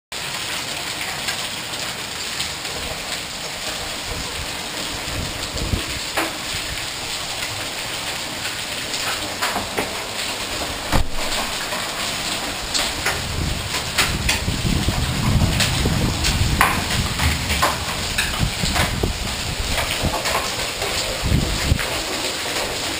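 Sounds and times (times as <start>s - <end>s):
steady rain falling: 0.1s - 22.9s
hailstones striking hard surfaces: 8.4s - 22.9s.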